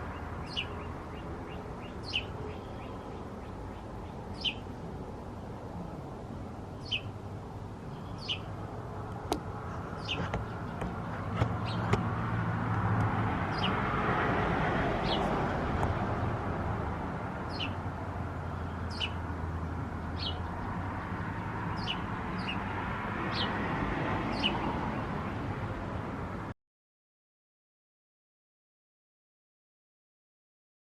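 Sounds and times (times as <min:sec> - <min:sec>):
small bird chirping: 0:00.1 - 0:04.7, 0:06.8 - 0:07.2, 0:07.9 - 0:08.6, 0:09.7 - 0:12.0, 0:17.5 - 0:17.8, 0:18.6 - 0:19.2, 0:21.7 - 0:22.7.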